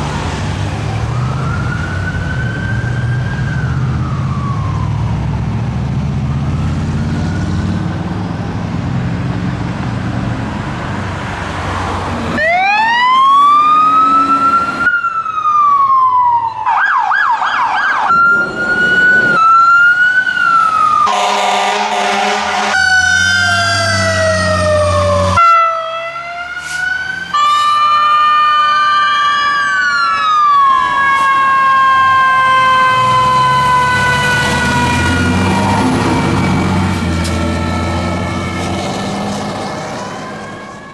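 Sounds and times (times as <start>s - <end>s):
engine and road rumble: 0.0s - 40.9s
siren wailing and yelping: 12.4s - 38.8s
horn blast: 21.1s - 23.1s.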